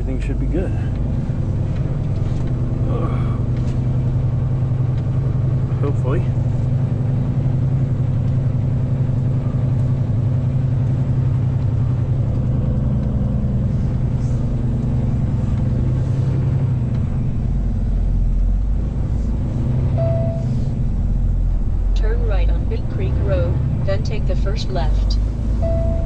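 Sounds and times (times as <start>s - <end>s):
truck diesel engine running: 0.0s - 26.0s
short beep: 20.0s - 20.5s, 25.6s - 26.0s.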